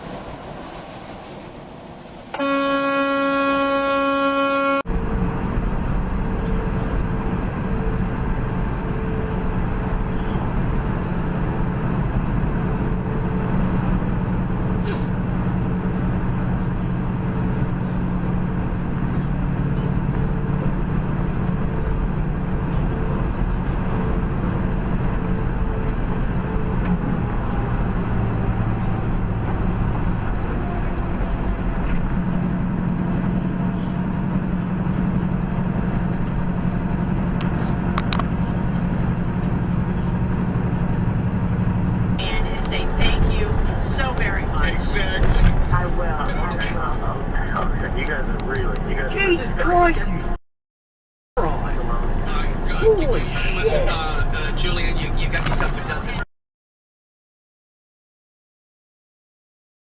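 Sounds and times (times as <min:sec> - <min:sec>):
tyre road noise: 0:00.0 - 0:50.4, 0:51.4 - 0:56.3
vehicle engine hum: 0:00.0 - 0:50.4, 0:51.4 - 0:56.3
vehicle horn blast: 0:02.3 - 0:04.9.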